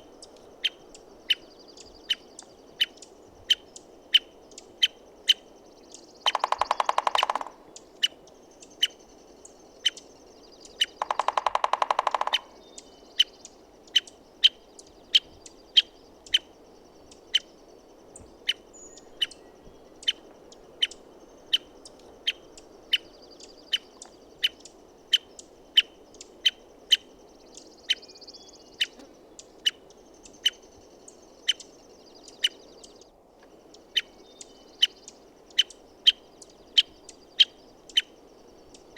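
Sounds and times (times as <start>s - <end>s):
woodpecker call notes: 0.0s - 38.9s
woodpecker drumming on wood: 6.2s - 7.7s, 10.9s - 12.6s.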